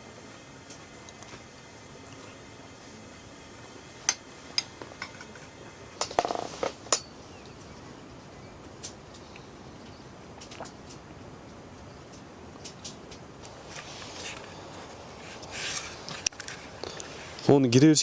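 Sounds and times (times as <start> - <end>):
rain hissing: 0.0 - 17.8
camp dishes and utensils clinking: 3.6 - 7.6, 12.1 - 17.9.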